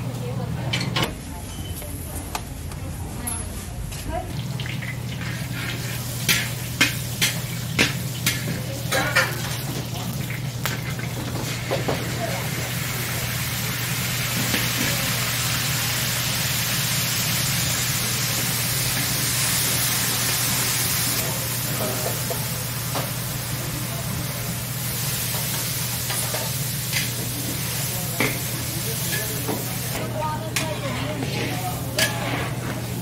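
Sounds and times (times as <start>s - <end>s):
sauce sizzling in oil: 4.7s - 30.0s.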